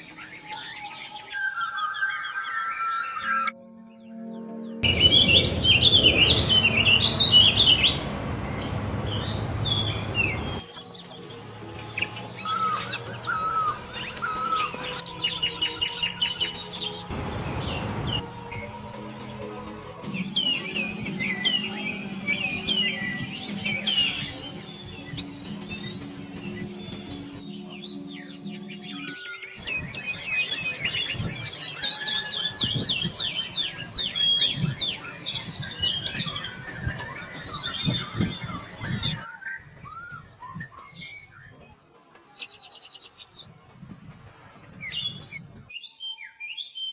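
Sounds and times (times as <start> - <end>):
songbirds chirping: 0.0 - 43.6
higher bird calls: 12.0 - 18.8.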